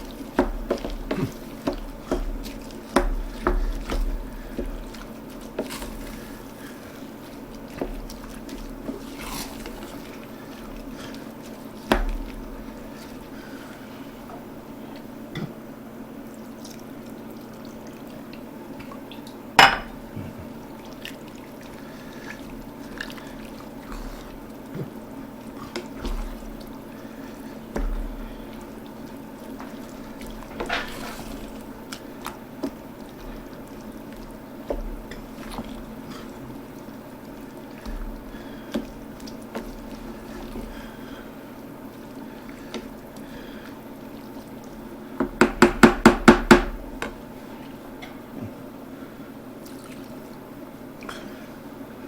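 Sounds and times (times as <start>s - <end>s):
spoon stirring thick sauce: 0.0s - 14.0s, 20.9s - 43.6s
spoon knocking against pot: 19.6s - 20.0s, 45.2s - 47.2s.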